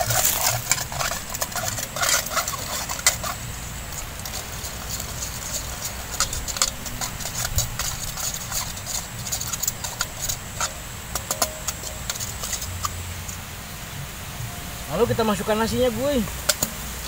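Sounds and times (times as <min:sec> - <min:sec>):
metal spatula scraping pan: 0:00.0 - 0:13.5
egg frying in hot oil: 0:00.0 - 0:17.0.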